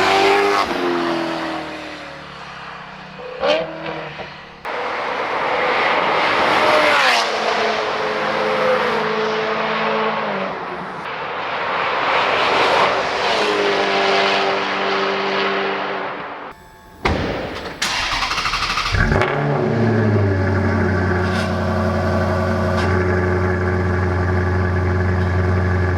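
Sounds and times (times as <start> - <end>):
wind and road noise: 0.0 - 23.7
car engine running: 16.6 - 25.9.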